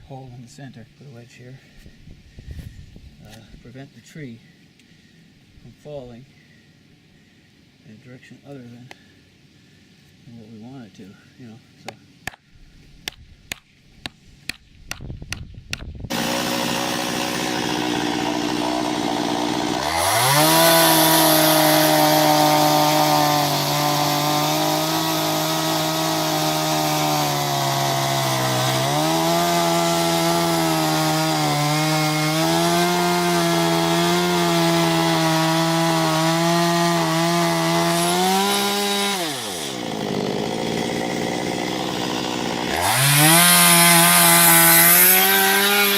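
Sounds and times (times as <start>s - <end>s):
chainsaw cutting wood: 13.0s - 45.9s.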